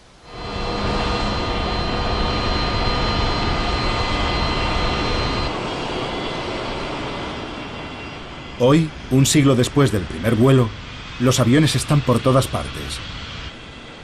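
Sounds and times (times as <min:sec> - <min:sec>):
jet engines roaring with whine: 0:00.0 - 0:14.0.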